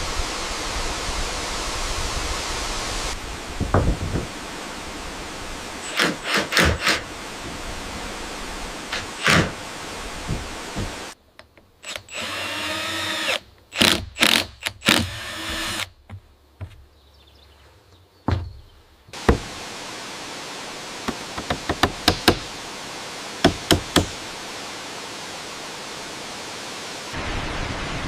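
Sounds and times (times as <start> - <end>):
rushing water noise: 0.0 - 11.2, 19.1 - 28.0
power drill whine: 11.8 - 15.9
sharp knocks on wood: 18.3 - 18.6, 19.2 - 19.5, 21.1 - 22.4, 23.4 - 24.2.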